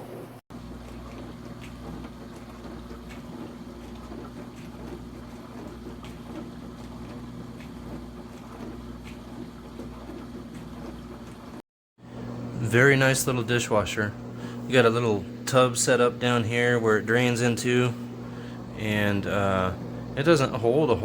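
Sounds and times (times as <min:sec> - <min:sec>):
dishwasher pump hum: 0:00.0 - 0:21.0
water washing: 0:00.6 - 0:21.0.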